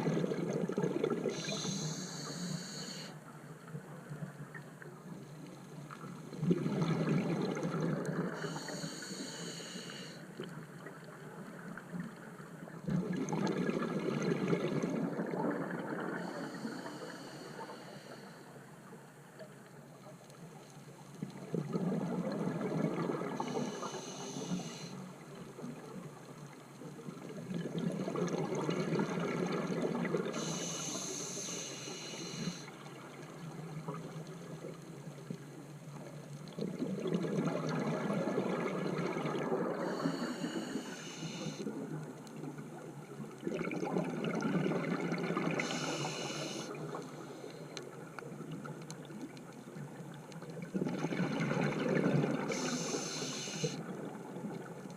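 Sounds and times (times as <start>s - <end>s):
regulator hiss: 1.3s - 3.2s, 8.4s - 10.2s, 23.4s - 25.0s, 30.4s - 32.7s, 39.8s - 41.6s, 45.6s - 47.5s, 52.5s - 53.8s.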